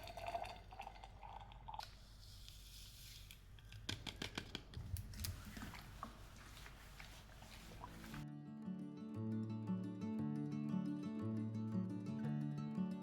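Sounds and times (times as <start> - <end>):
water pouring into a flask: 0.0 - 2.0.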